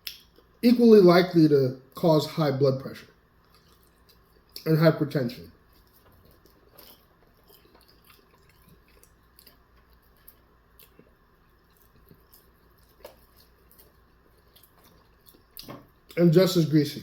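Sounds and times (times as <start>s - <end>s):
chewing food: 3.0s - 4.7s, 5.5s - 16.2s.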